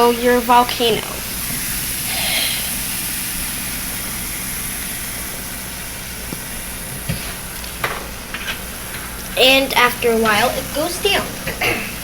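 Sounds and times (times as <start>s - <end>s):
fizzing reaction in a cup: 0.8s - 7.8s.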